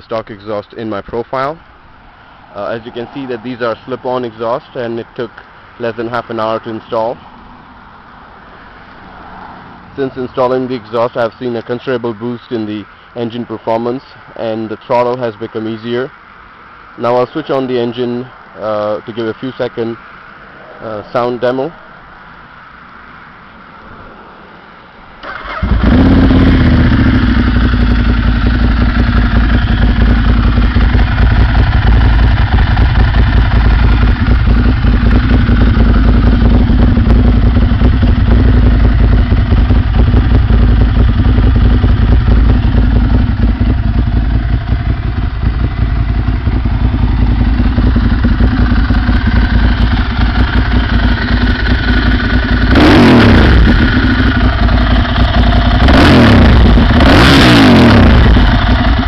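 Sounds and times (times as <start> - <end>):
motorcycle engine idling: 25.2 - 59.0
motorcycle engine revving: 25.2 - 59.0.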